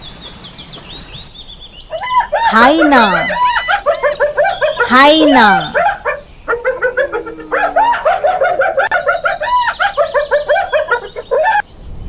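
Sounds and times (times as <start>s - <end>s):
hyena giggling: 2.2s - 11.6s.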